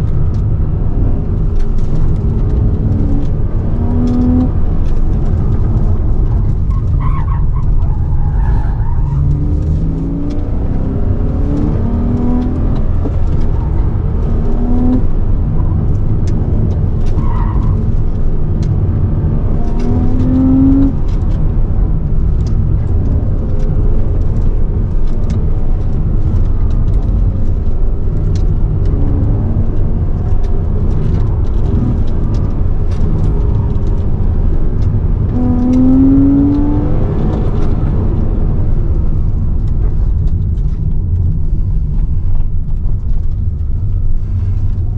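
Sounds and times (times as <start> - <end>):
car braking: 2.1 - 21.4, 34.8 - 38.6
car engine revving hard: 9.2 - 15.2, 19.5 - 21.2, 35.3 - 38.3.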